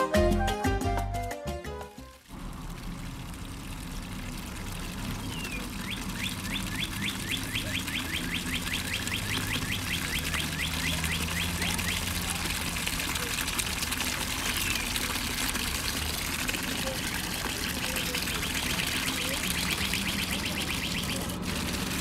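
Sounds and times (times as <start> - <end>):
outdoor background noise: 2.1 - 22.0
bird chirping rapidly: 5.2 - 12.2, 18.4 - 21.4.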